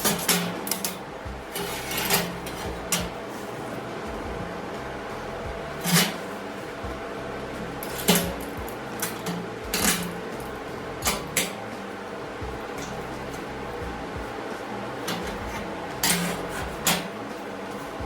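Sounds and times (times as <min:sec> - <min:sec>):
metal parts clanking: 0:00.0 - 0:03.8, 0:05.8 - 0:06.4, 0:07.7 - 0:11.6, 0:15.0 - 0:17.2
steady background hum: 0:00.0 - 0:18.0.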